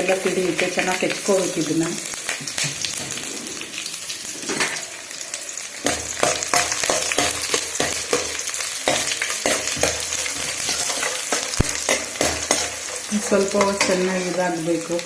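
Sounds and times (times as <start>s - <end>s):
frying in hot oil: 0.0s - 15.0s
spatula scraping a pan: 5.8s - 14.4s.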